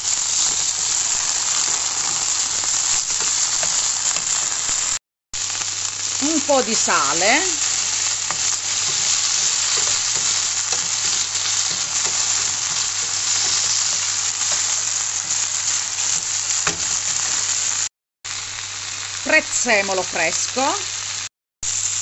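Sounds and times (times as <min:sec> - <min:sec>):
vegetables sizzling in hot oil: 0:00.0 - 0:22.0.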